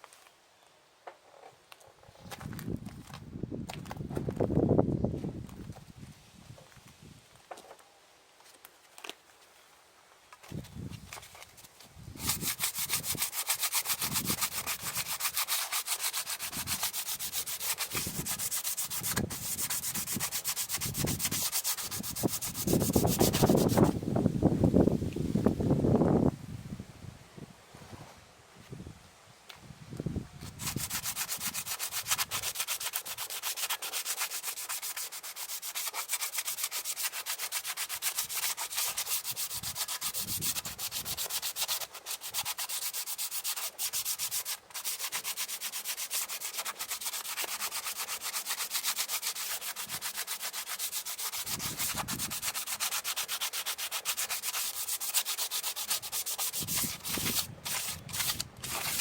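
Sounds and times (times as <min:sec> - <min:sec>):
machine-like rubbing or sanding: 0:12.2 - 0:23.9, 0:30.6 - 0:59.0.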